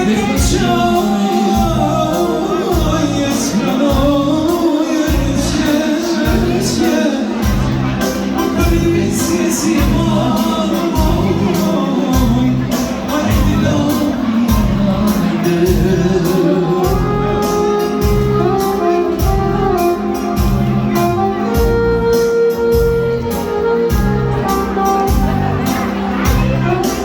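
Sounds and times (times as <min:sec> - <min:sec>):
live band music: 0:00.0 - 0:27.0.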